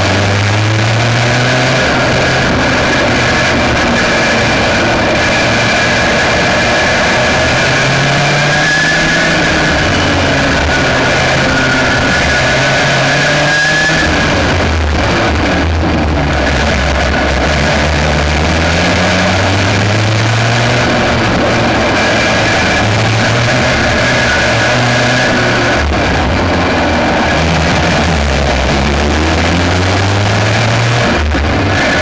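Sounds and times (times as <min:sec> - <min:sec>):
kart engine revving: 0:00.0 - 0:32.0.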